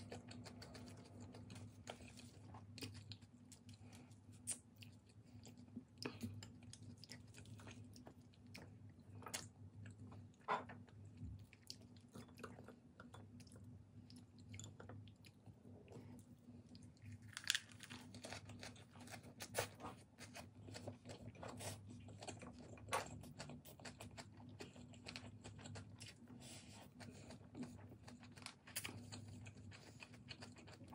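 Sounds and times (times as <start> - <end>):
low steady hum: 0.0 - 30.9
crisp chewing crunches: 16.7 - 30.9.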